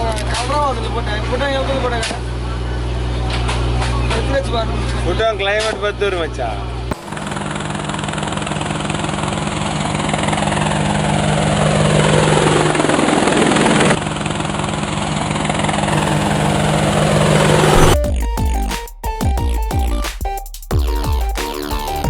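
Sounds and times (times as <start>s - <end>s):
boat engine humming: 6.7s - 18.7s
loud rushing noise: 15.9s - 18.0s.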